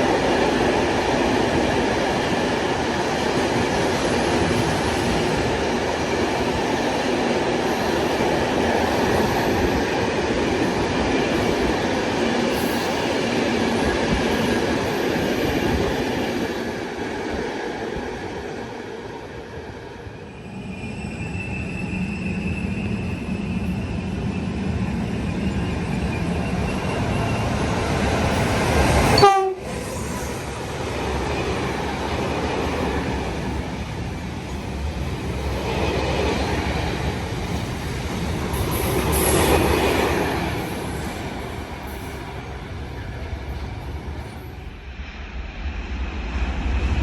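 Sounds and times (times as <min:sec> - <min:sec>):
train rail and wheel noise: 0:00.0 - 0:47.0
loud train blast: 0:25.4 - 0:35.6.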